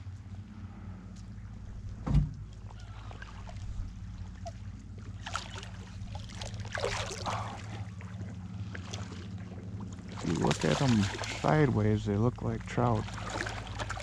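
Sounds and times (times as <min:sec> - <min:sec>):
steady low hum: 0:00.0 - 0:14.0
fish thrashing in water: 0:02.4 - 0:14.0.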